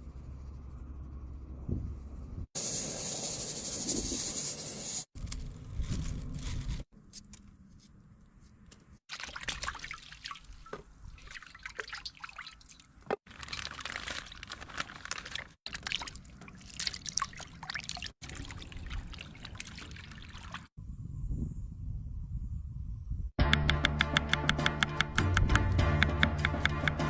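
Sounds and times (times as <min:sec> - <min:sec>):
water pouring from a bucket: 0:09.1 - 0:20.7
water splashing in a pot: 0:09.1 - 0:20.7.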